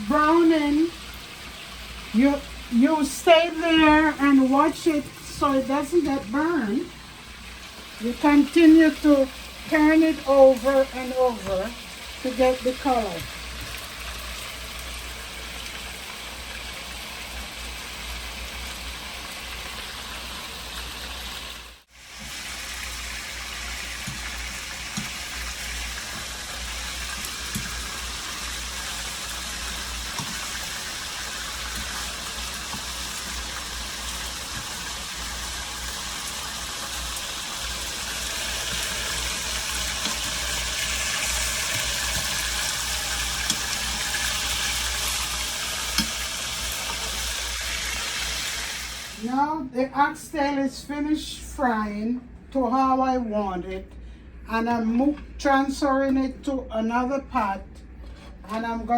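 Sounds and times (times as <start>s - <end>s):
meat sizzling in hot oil: 0.0s - 49.2s.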